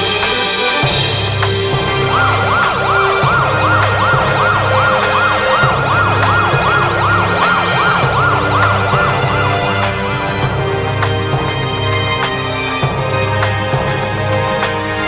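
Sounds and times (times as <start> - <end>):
background music with bass line: 0.0 - 15.0
siren wailing: 1.4 - 10.4.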